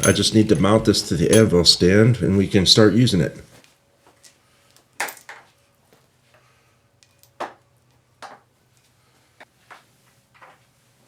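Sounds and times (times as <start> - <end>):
metal hardware knocking and clinking: 0.0 - 1.9.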